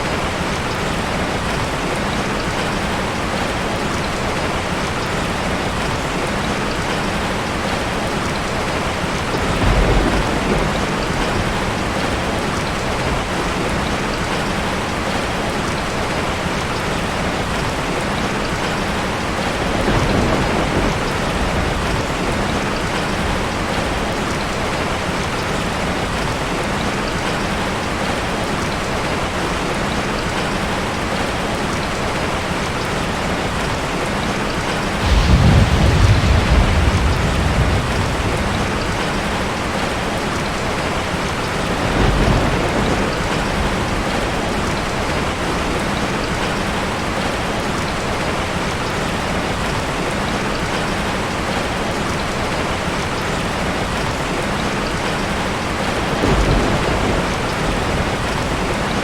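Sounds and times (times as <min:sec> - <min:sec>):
heavy rain falling: 0:00.0 - 0:59.0
thunder rumbling: 0:06.8 - 0:16.4, 0:17.5 - 0:26.3, 0:33.6 - 0:46.6, 0:55.5 - 0:59.0.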